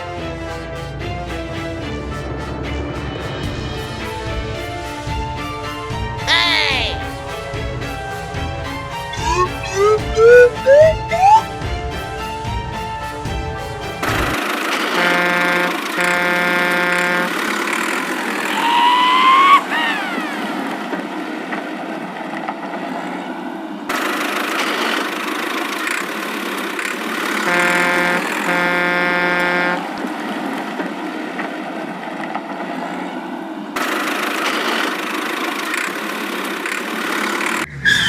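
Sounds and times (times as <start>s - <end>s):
cartoon engine running: 9.2s - 11.4s
cartoon horn honks: 9.2s - 11.4s, 15.0s - 17.4s, 27.5s - 29.8s
swooping whistle-like tone: 9.2s - 11.4s, 18.5s - 20.5s.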